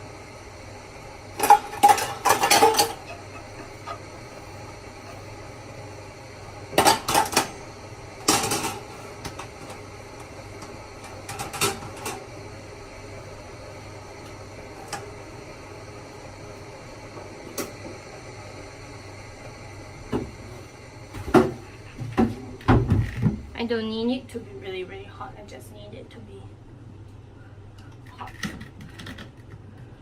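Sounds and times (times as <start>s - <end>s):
dishes clinking: 1.4s - 4.0s.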